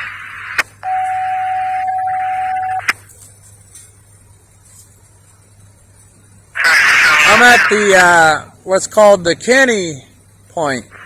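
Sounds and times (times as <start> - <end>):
radio hiss: 0.0 - 1.0, 6.5 - 8.5, 10.6 - 11.0
steady radio tone: 0.0 - 3.0, 6.6 - 8.2.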